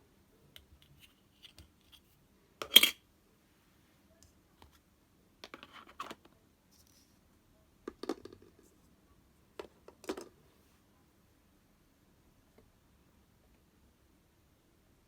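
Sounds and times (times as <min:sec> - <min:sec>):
small objects clicking and tapping: 0:07.8 - 0:08.6.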